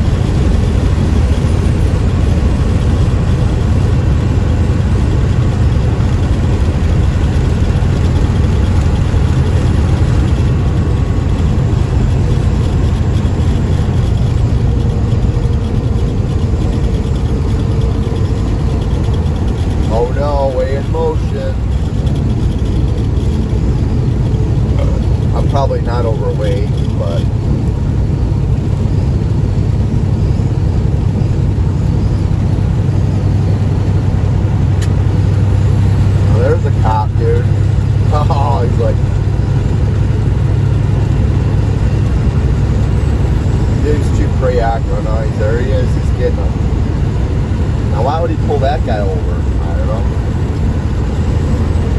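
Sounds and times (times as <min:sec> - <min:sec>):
road noise: 0:00.0 - 0:51.9
truck engine drone: 0:00.0 - 0:51.9.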